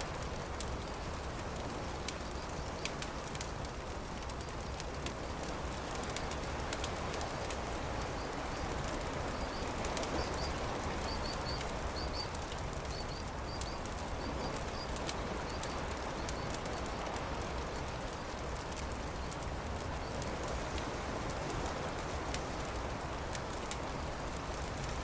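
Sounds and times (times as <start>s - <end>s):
campfire crackling: 0.0s - 25.0s
birds chirping: 8.2s - 16.6s.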